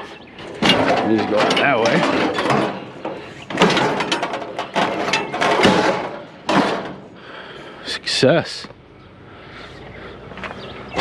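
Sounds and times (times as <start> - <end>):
metal rattling: 0.0 - 7.2
scrap metal scraping and clanking: 0.0 - 7.7.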